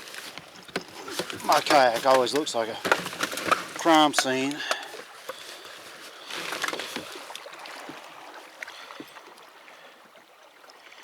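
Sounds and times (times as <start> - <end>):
light clicks and knocks: 0.3 - 5.4.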